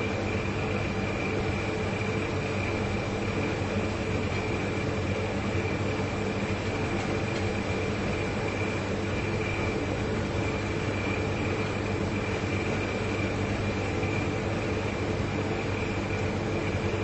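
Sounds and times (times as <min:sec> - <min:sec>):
refrigerator compressor hum: 0:00.0 - 0:17.0
thin constant whine: 0:00.0 - 0:17.0.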